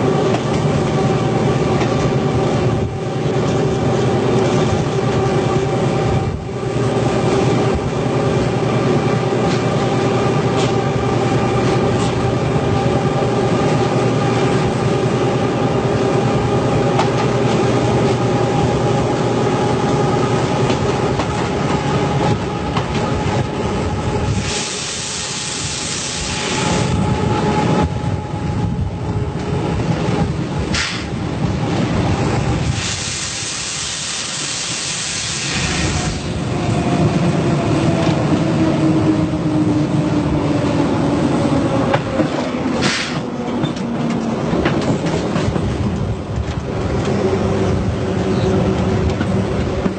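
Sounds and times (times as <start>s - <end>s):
train running on track: 0.0s - 49.9s
loud hiss: 24.3s - 26.9s, 32.6s - 36.4s.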